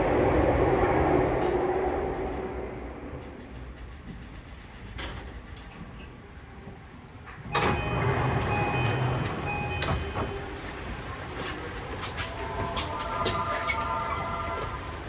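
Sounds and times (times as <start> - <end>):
train low rumble: 0.0 - 15.0
sliding doors clattering: 7.5 - 15.0.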